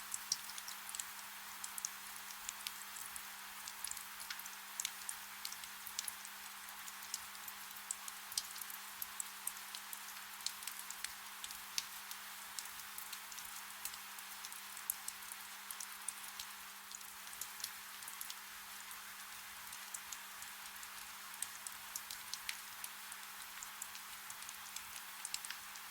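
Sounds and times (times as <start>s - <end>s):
soft rain hiss: 0.0s - 25.9s
raindrops ticking: 21.4s - 25.6s.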